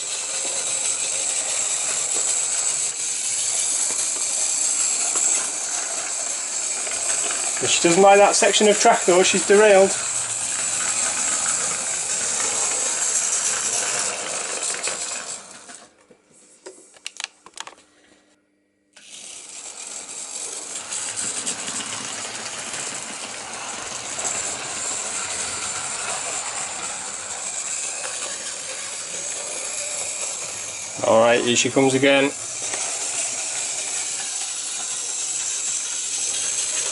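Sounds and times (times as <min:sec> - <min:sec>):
model train motor whirring: 0:00.0 - 0:15.9, 0:19.0 - 0:36.9
wheels rattling on rails: 0:00.0 - 0:15.9, 0:19.9 - 0:36.9.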